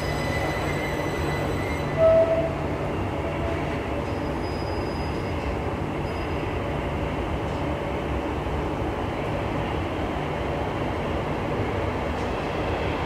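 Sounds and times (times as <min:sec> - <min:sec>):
train electric whine: 0:00.0 - 0:06.6
stopped train humming: 0:00.0 - 0:13.0.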